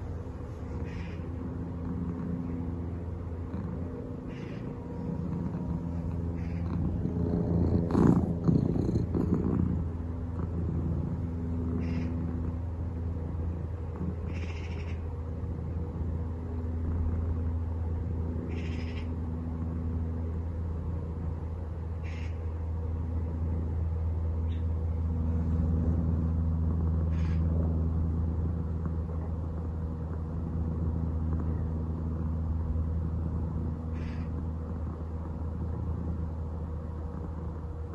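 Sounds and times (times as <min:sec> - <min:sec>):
aeroplane drone overhead: 0:00.0 - 0:37.9
cat purring: 0:00.0 - 0:37.9.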